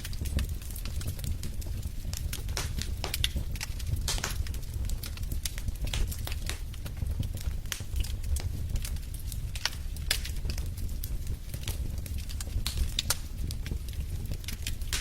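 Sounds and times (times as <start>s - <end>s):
fire crackling in fireplace: 0.0s - 15.0s
steady low rumble: 0.0s - 15.0s.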